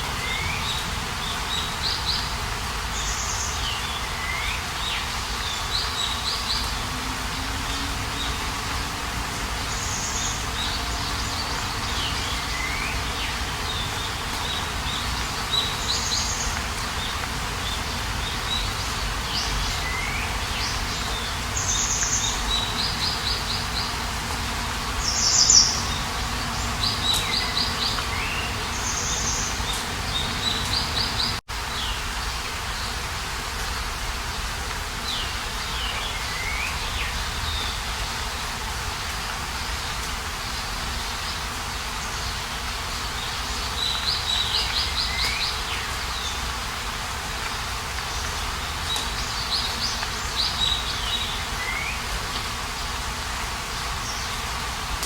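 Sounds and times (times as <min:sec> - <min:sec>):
birds calling and singing: 0:00.0 - 0:33.0, 0:35.0 - 0:55.0.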